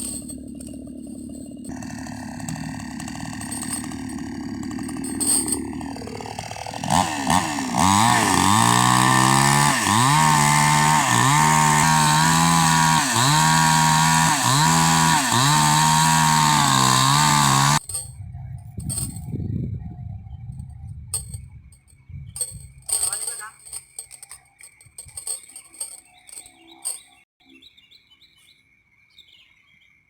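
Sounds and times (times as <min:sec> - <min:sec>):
chainsaw cutting wood: 0:00.0 - 0:18.1.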